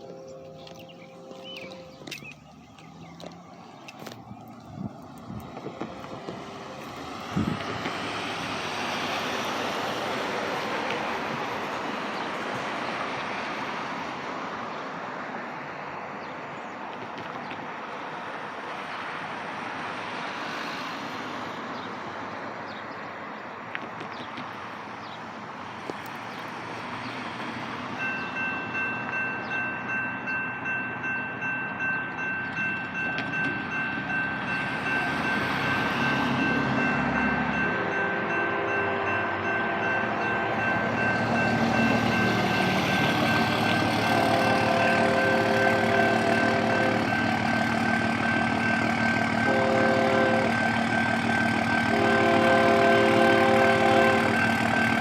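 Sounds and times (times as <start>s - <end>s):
crossing warning bell ringing: 0.0s - 11.8s, 27.6s - 55.0s
freight train wheels rumbling on rail: 0.0s - 22.7s, 23.6s - 55.0s.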